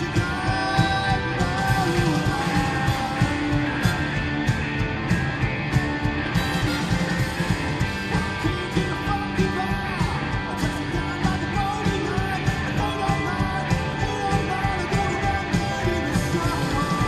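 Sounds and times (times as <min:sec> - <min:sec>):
drum beat: 0:00.0 - 0:17.0
guitar: 0:00.0 - 0:17.0
keyboard: 0:00.0 - 0:17.0.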